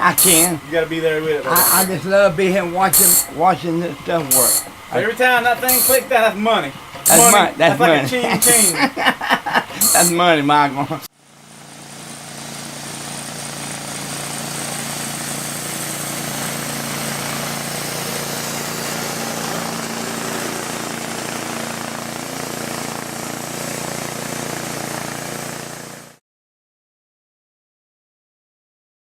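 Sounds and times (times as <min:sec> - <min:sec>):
sharpening machine grinding: 0:00.0 - 0:26.2.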